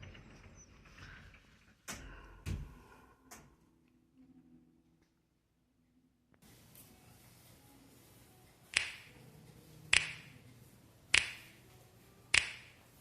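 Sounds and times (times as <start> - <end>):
finger snaps: 8.8 - 9.1, 9.9 - 10.3, 11.1 - 11.4, 12.3 - 12.7.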